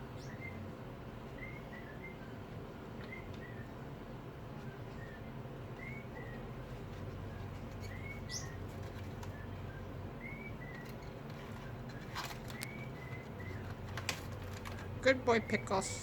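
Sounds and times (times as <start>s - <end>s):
parrot chirping: 0.0s - 0.6s, 4.7s - 13.9s
rustles and taps: 5.7s - 9.5s, 10.6s - 15.0s.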